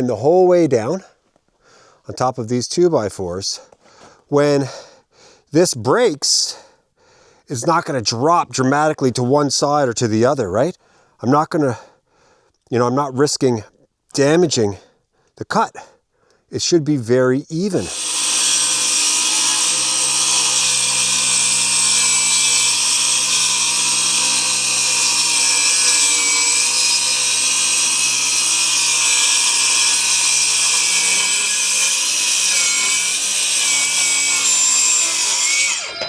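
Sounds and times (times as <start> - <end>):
circular saw cutting lumber: 17.6 - 36.0.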